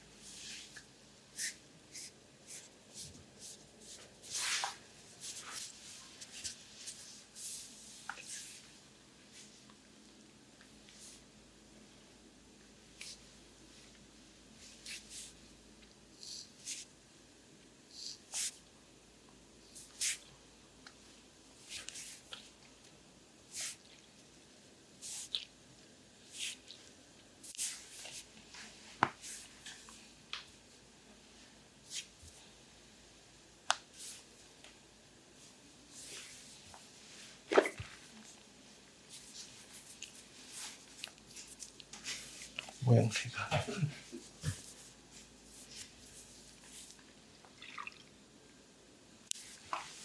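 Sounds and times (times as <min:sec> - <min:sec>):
hands swishing on oiled skin: 0:01.4 - 0:08.7, 0:39.1 - 0:42.8.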